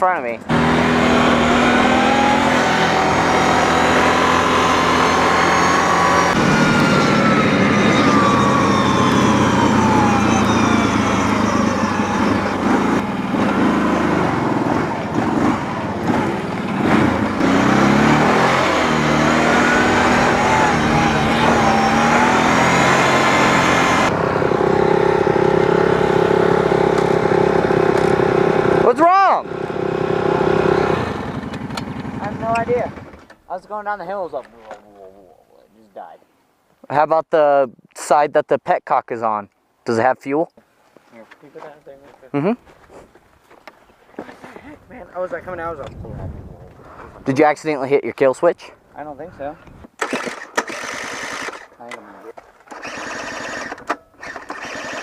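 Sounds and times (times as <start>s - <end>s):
dirt bike engine: 0.0s - 34.8s, 48.6s - 55.0s.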